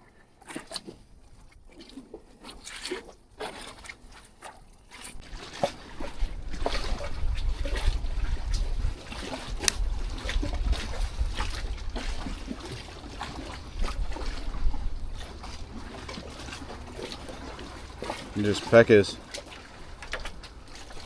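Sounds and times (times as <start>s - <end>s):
water sloshing and splashing: 0.0s - 21.0s
wind rumbling on microphone: 5.1s - 18.2s.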